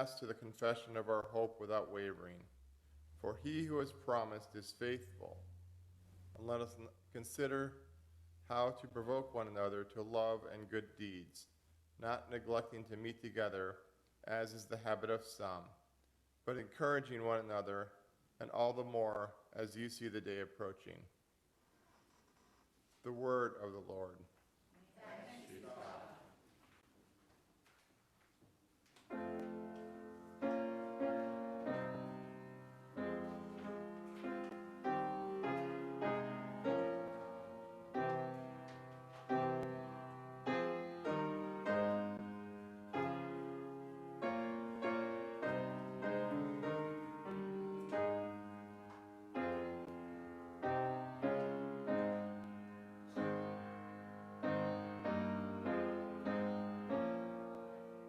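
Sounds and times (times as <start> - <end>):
slow quiet piano chords: 29.1 - 58.0.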